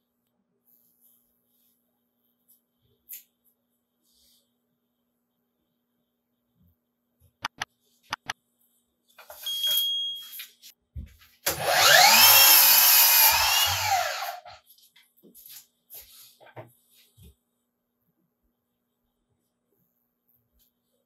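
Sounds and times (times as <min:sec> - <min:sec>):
sharp clicks: 0:07.4 - 0:08.4
power saw cutting: 0:11.5 - 0:14.6.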